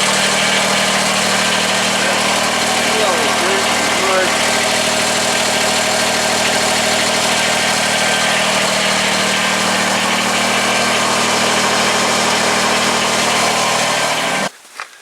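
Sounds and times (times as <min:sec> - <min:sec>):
motor humming evenly: 0:00.0 - 0:14.5.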